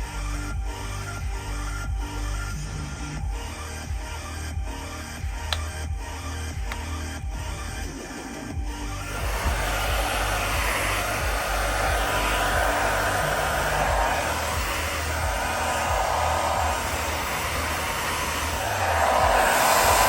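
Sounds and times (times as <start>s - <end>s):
hair dryer running: 5.3s - 5.7s, 9.0s - 20.0s.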